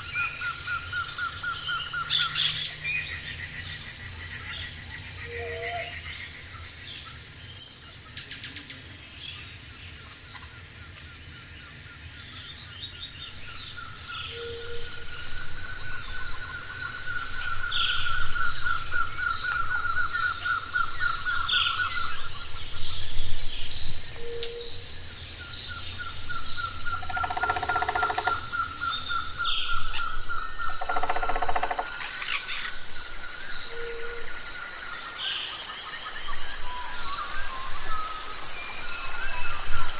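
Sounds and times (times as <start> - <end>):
low hoot: 5.3 - 5.9
birds chirping: 10.2 - 39.9
harsh bird calls: 13.8 - 36.2
bird rapid trill: 25.9 - 32.7.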